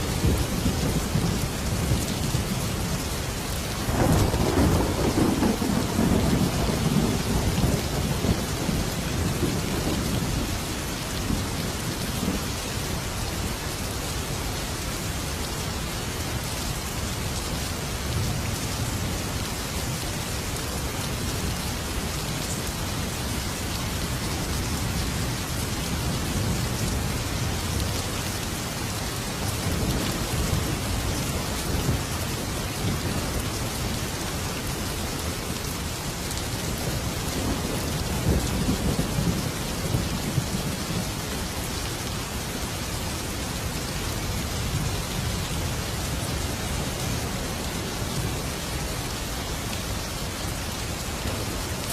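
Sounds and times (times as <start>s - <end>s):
heavy rain: 0.0s - 51.9s
thunder rumbling: 3.8s - 12.5s.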